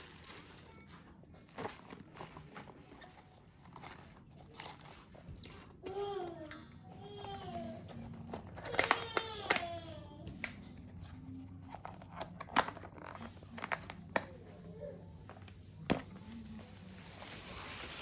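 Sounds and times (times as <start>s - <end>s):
clicks and knocks of objects: 0.2s - 14.4s.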